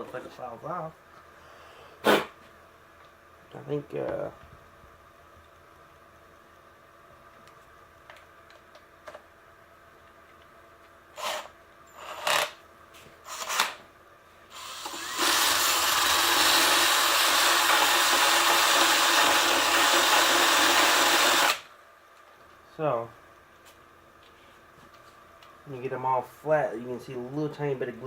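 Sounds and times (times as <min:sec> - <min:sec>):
power tool grinding glue: 0:11.2 - 0:12.6, 0:14.5 - 0:21.7.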